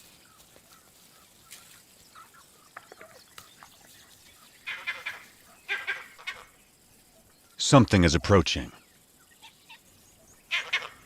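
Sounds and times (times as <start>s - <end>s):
harsh rapid animal calls: 0.4s - 6.6s, 9.4s - 11.0s.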